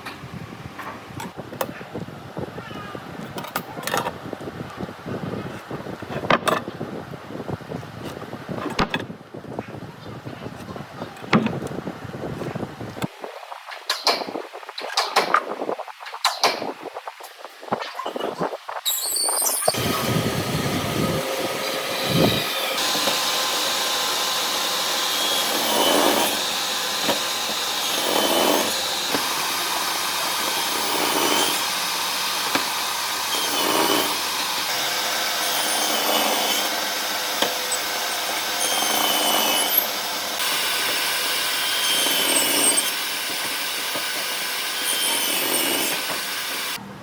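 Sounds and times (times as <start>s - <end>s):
power tool working wood: 19.6s - 46.8s.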